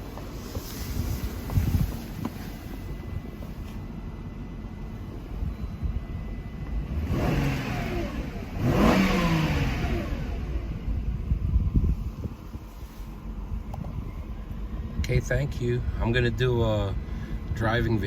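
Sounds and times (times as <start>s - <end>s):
car engine idling: 0.0s - 18.0s
car engine revving: 6.6s - 11.3s.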